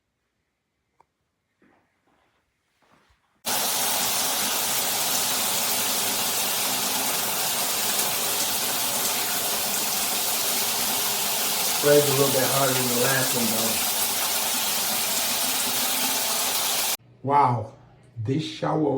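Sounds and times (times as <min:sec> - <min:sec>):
shower spraying water: 0:03.4 - 0:17.0.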